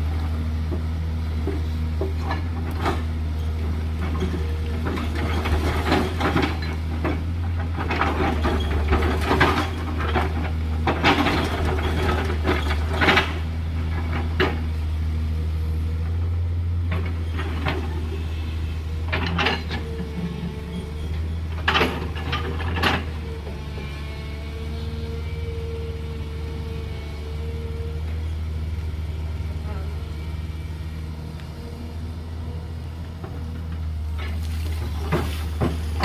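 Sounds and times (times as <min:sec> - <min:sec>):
diesel excavator engine running: 0:00.0 - 0:36.0
gravel and stones scraping: 0:34.2 - 0:36.0.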